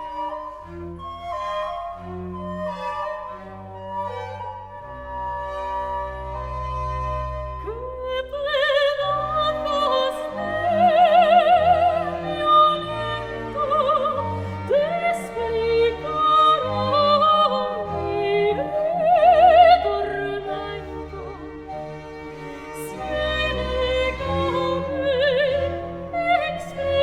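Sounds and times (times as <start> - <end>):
orchestral accompaniment: 0.0 - 27.0
operatic singing with vibrato: 7.6 - 21.8, 22.6 - 27.0.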